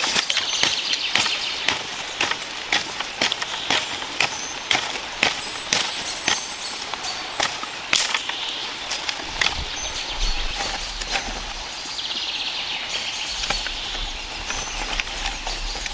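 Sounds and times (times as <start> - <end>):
sharp cracks and crunches: 0.0 - 11.9
steady hiss: 0.0 - 15.9.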